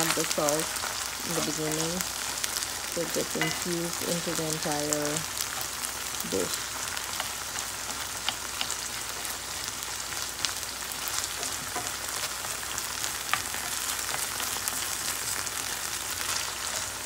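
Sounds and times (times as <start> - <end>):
hot oil popping: 0.0 - 17.0
okra sizzling in oil: 0.0 - 17.0.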